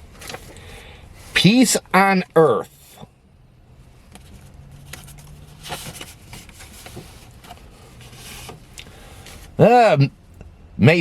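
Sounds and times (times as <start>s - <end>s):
paper rustling: 0.1s - 1.5s, 4.1s - 9.6s.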